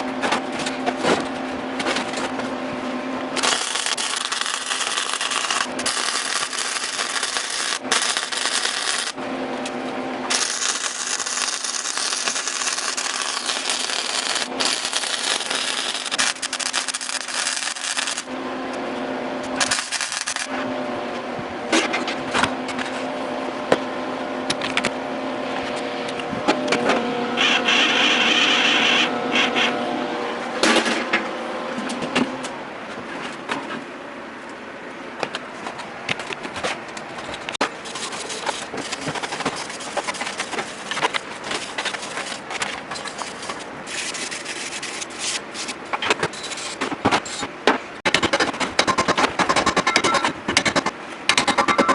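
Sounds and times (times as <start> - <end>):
high motor whine: 2.1 - 32.0
motor humming: 3.2 - 18.4, 19.4 - 21.5.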